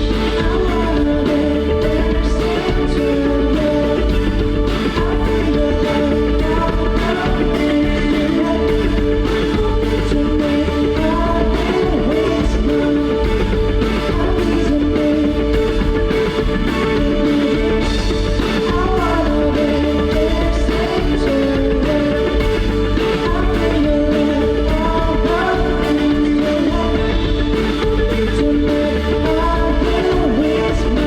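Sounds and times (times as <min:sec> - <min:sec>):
bass: 0:00.0 - 0:31.0
drums: 0:00.0 - 0:31.0
held guitar chords: 0:00.0 - 0:31.0.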